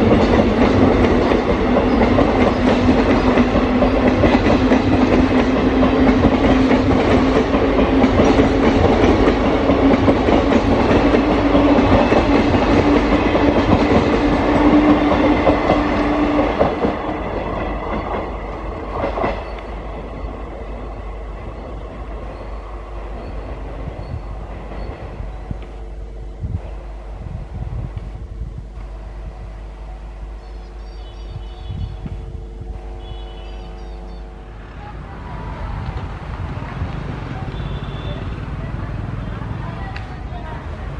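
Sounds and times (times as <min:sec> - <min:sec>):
train wheels clattering over rail joints: 0:00.0 - 0:25.8
train hum: 0:00.0 - 0:40.9.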